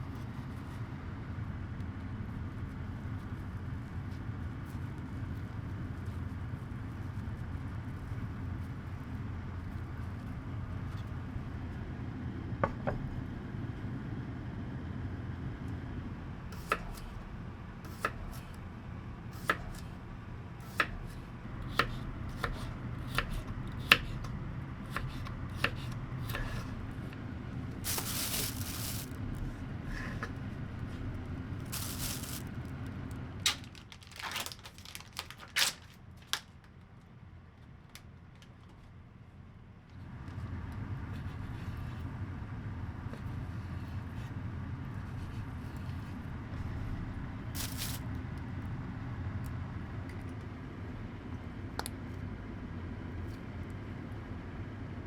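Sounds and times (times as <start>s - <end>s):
knife chopping on cutting board: 20.7s - 24.3s, 24.9s - 26.7s.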